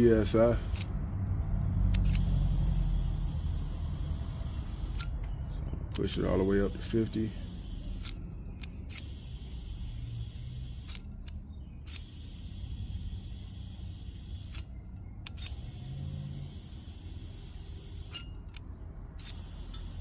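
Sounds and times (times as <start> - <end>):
air hissing into a tire: 0.0 - 1.0, 2.0 - 5.2, 7.3 - 8.2, 8.9 - 11.0, 11.9 - 14.6, 15.4 - 18.3, 19.2 - 20.0
low steady rumble: 0.0 - 20.0.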